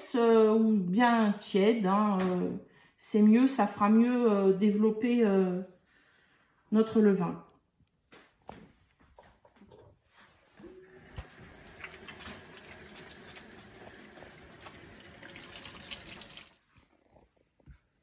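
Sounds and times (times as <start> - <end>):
water running: 10.6 - 16.8.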